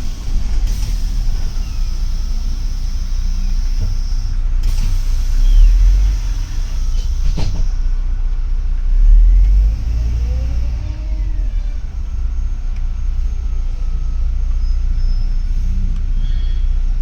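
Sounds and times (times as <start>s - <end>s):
bus engine and road rumble: 0.0s - 17.0s
faint whines: 0.0s - 17.0s
sharp knocks from bus body: 6.4s - 7.9s.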